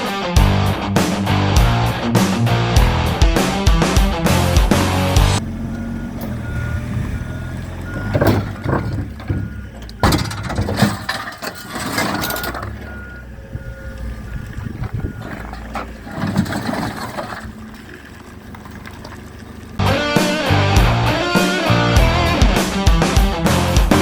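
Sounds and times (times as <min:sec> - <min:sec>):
forklift engine running: 0:00.4 - 0:24.0
reversing alarm beeping: 0:05.4 - 0:10.7, 0:11.5 - 0:15.6
metallic clunks: 0:05.6 - 0:13.3, 0:14.6 - 0:17.6.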